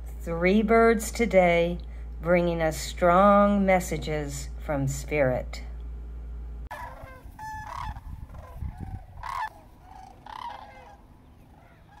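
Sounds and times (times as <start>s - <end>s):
birds calling: 6.7s - 12.0s
high rattling bird call: 9.2s - 12.0s.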